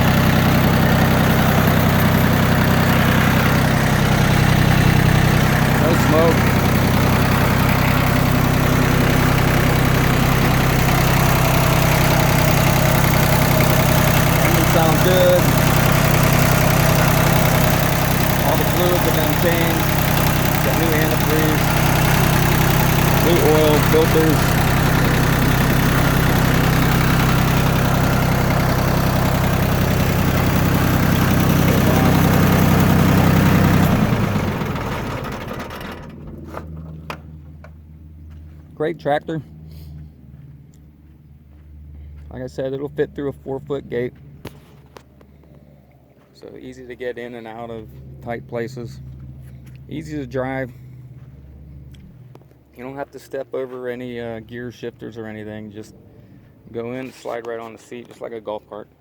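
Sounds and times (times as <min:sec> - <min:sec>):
tractor diesel engine idling: 0:00.0 - 0:40.3.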